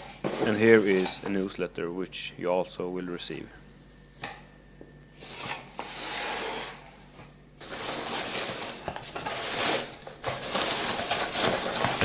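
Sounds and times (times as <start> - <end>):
paper rustling: 7.6 - 12.0.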